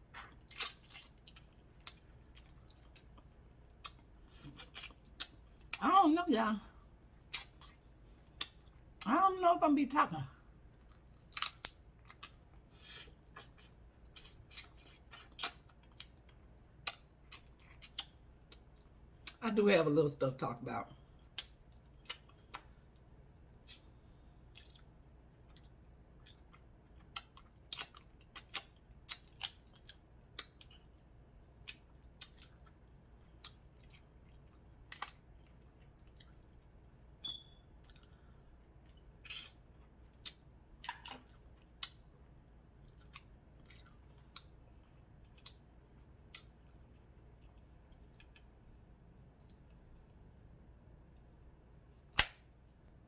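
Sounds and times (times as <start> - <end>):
chewing: 0.1 - 5.8, 23.6 - 31.0, 31.6 - 36.9, 37.8 - 50.1.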